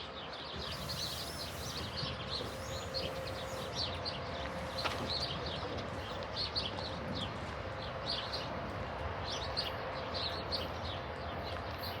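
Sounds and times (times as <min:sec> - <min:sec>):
small birds chirping: 0:00.5 - 0:04.0.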